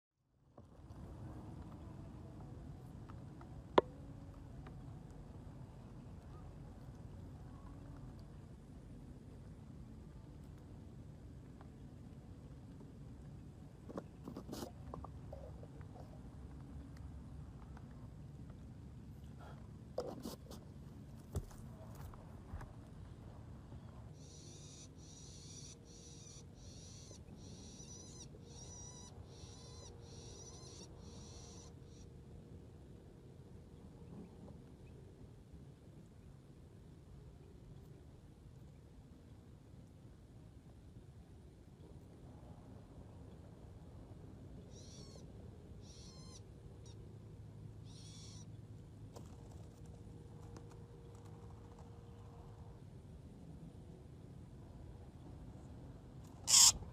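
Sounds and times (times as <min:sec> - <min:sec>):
bird calling high-pitched: 0:24.2 - 0:32.0, 0:44.7 - 0:45.2, 0:45.8 - 0:46.4, 0:47.9 - 0:48.5, 0:56.4 - 0:56.8.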